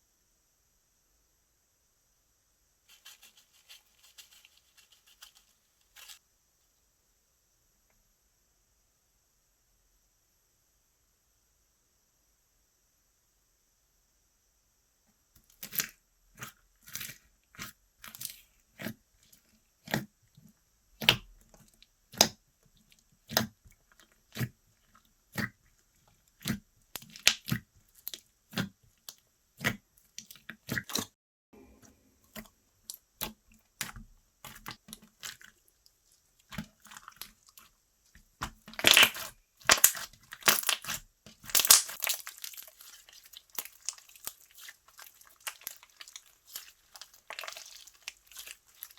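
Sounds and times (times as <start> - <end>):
slime popping and clicking: 38.4 - 42.7.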